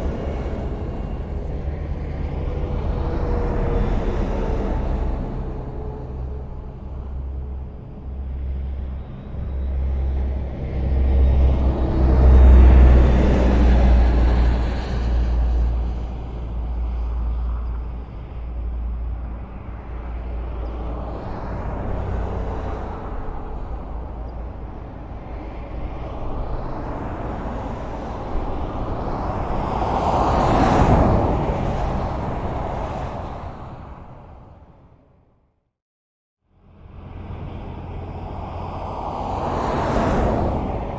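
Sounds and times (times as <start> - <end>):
vehicles passing close: 0.0 - 35.1, 36.5 - 40.9
highway traffic rumble: 0.0 - 35.5, 36.5 - 40.9.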